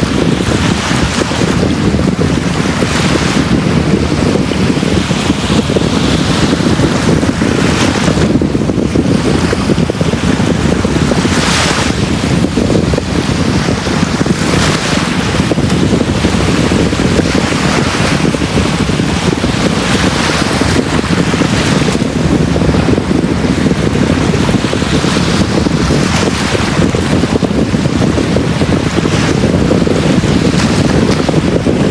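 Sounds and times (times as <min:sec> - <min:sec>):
waves washing onto beach: 0:00.0 - 0:31.9.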